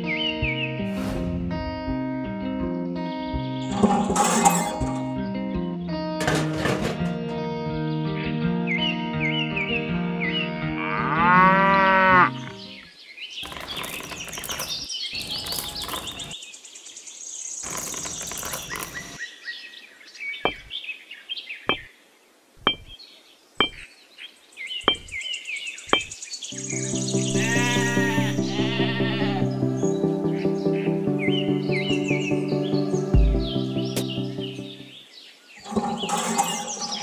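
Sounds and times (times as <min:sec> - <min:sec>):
background music: 0:00.0 - 0:12.8, 0:26.6 - 0:35.0
cow mooing: 0:10.7 - 0:12.6, 0:27.3 - 0:29.4
pebbles rattling onto sand: 0:13.4 - 0:16.4, 0:17.6 - 0:19.2
sharp clicks of pebbles set down: 0:13.4 - 0:16.4, 0:17.6 - 0:19.2.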